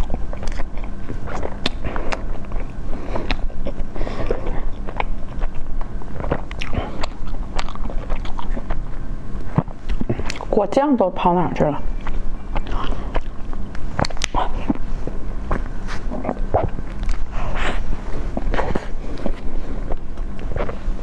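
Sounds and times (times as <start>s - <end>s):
chewing soft cake: 0.0s - 21.0s
wet mouth clicks and smacks: 12.0s - 14.8s, 16.2s - 17.3s.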